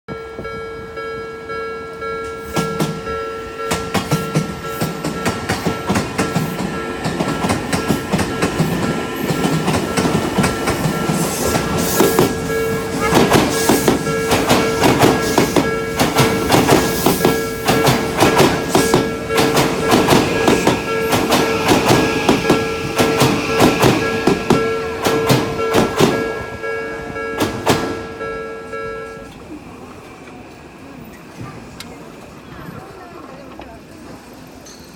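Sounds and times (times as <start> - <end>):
crossing warning bell: 0.1 - 29.6
train wheels clacking: 2.2 - 29.4.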